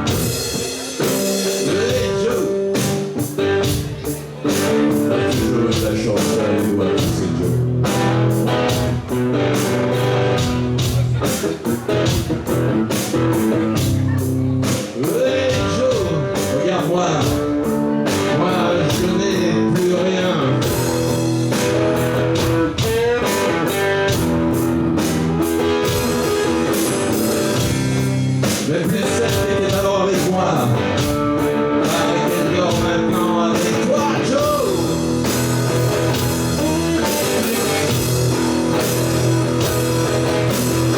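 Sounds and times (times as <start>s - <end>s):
drums with steady beat: 0.0s - 40.9s
electric guitar: 0.0s - 40.9s
person singing: 0.4s - 2.9s, 4.0s - 7.8s, 14.7s - 21.1s, 22.5s - 23.9s, 28.5s - 35.2s.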